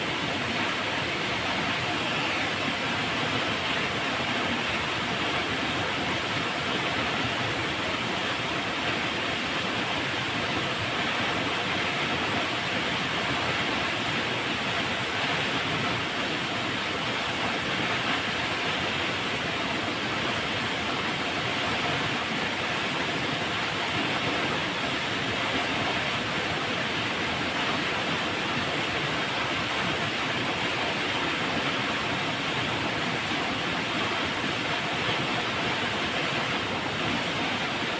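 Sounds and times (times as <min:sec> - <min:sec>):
river water rushing: 0:00.0 - 0:37.9.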